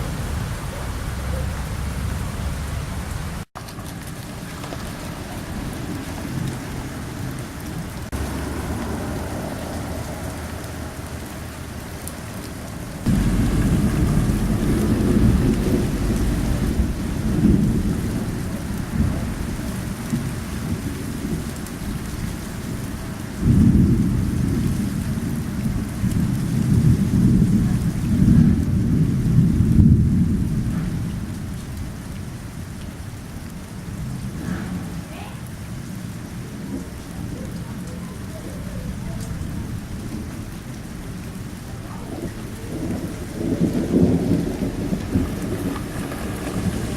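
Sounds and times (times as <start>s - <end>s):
heavy rain: 0.0s - 46.9s
rolling thunder: 0.0s - 46.9s.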